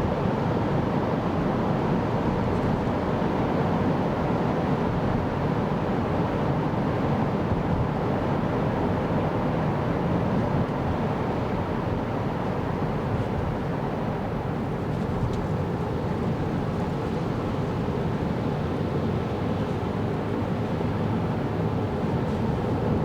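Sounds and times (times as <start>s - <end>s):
road and tyre rumble inside car: 0.0s - 23.0s.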